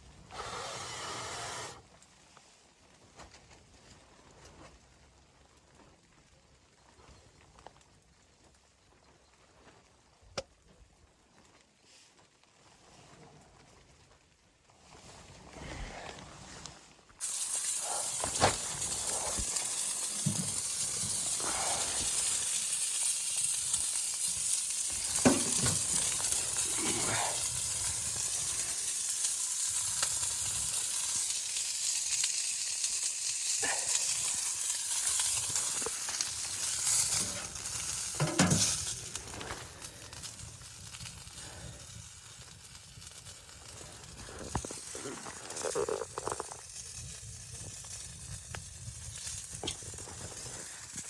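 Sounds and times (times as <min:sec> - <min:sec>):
high sizzling hiss: 0:00.3 - 0:01.8, 0:17.2 - 0:42.6.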